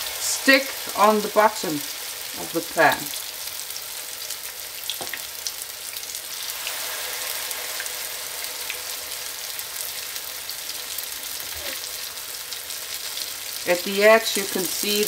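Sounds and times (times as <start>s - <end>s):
oil sizzling in a pan: 0.0s - 15.0s.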